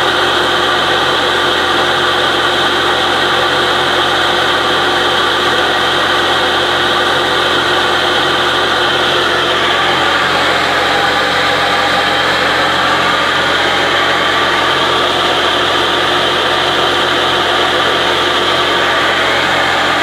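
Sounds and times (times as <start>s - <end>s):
tractor engine running: 0.0s - 20.0s
loud rushing noise: 8.9s - 20.0s.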